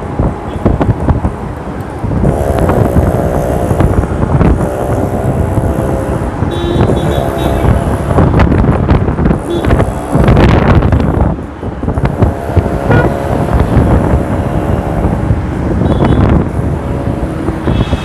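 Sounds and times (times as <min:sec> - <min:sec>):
motorbike engine in traffic: 0:00.0 - 0:18.0
wind buffeting microphone: 0:00.0 - 0:18.0
held pitched tones: 0:02.2 - 0:08.4, 0:09.3 - 0:11.2.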